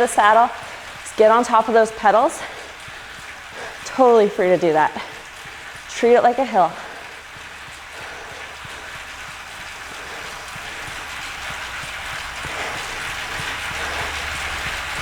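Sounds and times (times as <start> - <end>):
steady rushing noise: 7.6 - 15.0.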